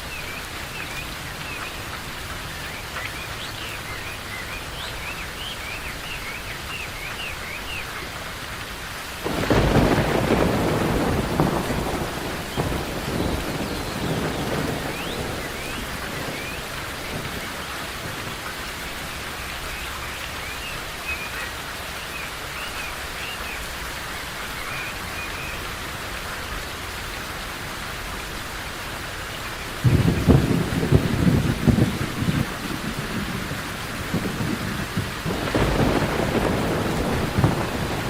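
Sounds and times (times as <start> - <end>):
steady rain: 0.0 - 38.0
loud thunderclap: 9.2 - 18.6, 29.8 - 38.0
thunder rumbling: 9.2 - 19.4, 29.8 - 38.0
birds chirping faintly: 11.0 - 25.7.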